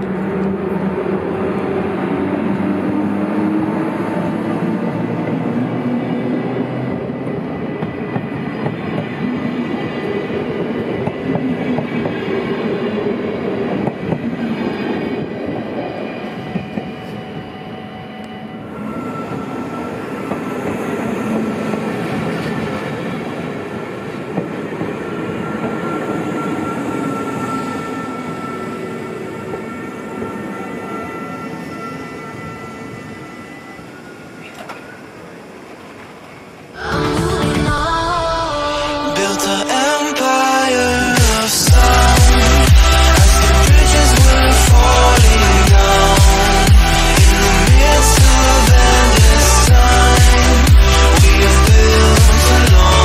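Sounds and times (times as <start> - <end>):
train wheels rumbling on rails: 0.0 - 36.8.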